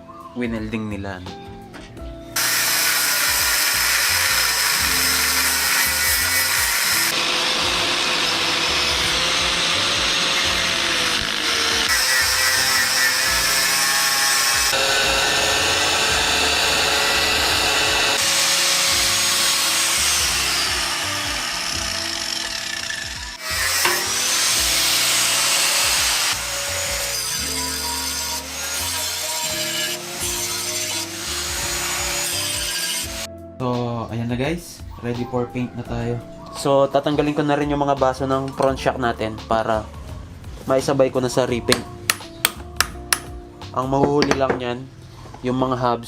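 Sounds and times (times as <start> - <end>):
background music: 0.0 - 46.0
power tool grinding metal: 2.4 - 33.3.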